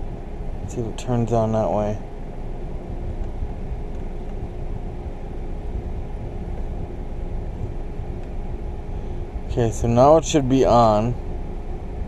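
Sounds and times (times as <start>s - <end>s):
car idling rumble: 0.0s - 12.0s
faint steady hum: 0.0s - 12.0s.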